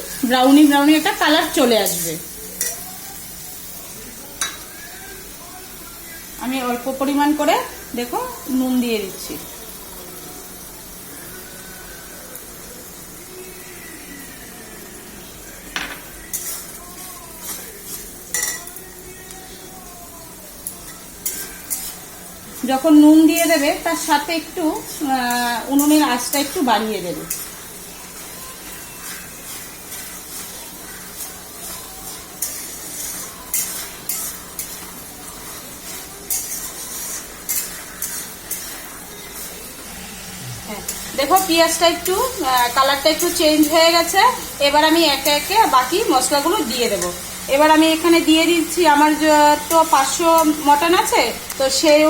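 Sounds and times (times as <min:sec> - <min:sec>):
faint frying sizzle: 0:00.0 - 0:52.0
spoon clinking and scraping pan: 0:01.0 - 0:02.9, 0:04.4 - 0:04.8, 0:15.7 - 0:16.8, 0:17.4 - 0:18.8, 0:20.6 - 0:22.1, 0:23.3 - 0:39.7, 0:40.8 - 0:47.4.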